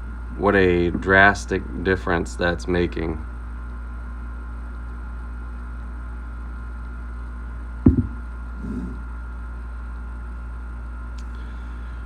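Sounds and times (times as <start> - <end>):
steady low hum: 0.0 - 12.0
shotgun barrel knocking on workbench: 7.9 - 8.2
barrel rubbing: 7.9 - 9.0.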